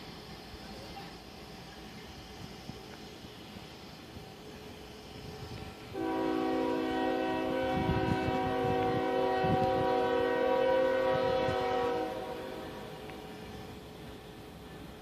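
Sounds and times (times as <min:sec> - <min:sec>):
train rumbling: 0:00.0 - 0:15.0
locomotive air horn blast: 0:06.0 - 0:13.0.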